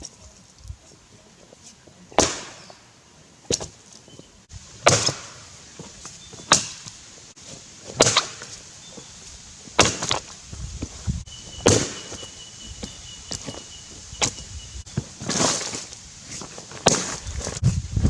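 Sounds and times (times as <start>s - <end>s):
axe chopping into log: 2.2s - 2.7s, 4.8s - 5.5s, 6.4s - 7.0s, 7.9s - 8.5s, 9.8s - 10.3s, 11.6s - 12.2s, 16.7s - 17.2s.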